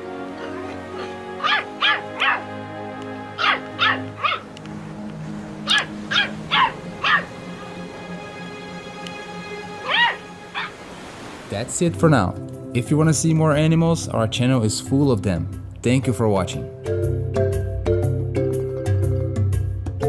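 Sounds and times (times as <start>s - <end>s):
soft background music: 0.0s - 20.0s
puppy yapping: 0.4s - 2.5s, 3.4s - 4.5s, 5.7s - 7.3s, 9.8s - 10.8s.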